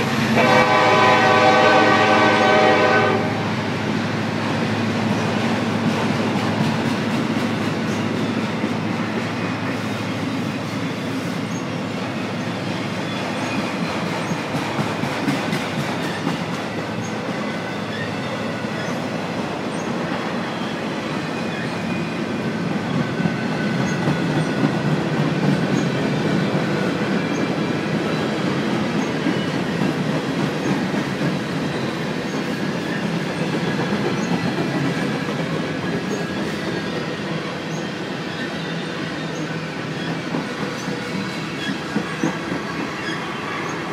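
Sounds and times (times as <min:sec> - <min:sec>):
train wheels rumbling and rattling: 0:00.0 - 0:43.9
high-pitched wheel squeals: 0:40.8 - 0:43.9.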